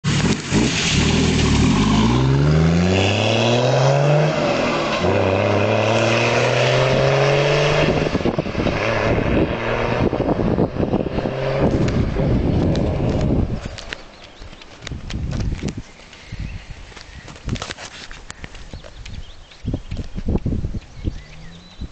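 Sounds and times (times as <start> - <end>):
diesel engine accelerating: 0.1 - 13.5.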